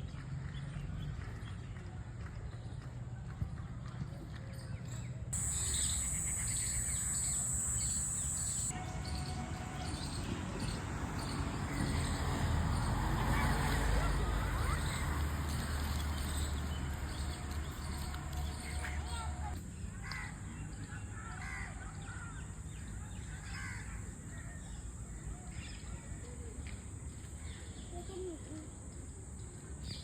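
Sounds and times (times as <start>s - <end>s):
outdoor background noise: 0.0s - 30.0s
birds chirping: 5.4s - 19.6s.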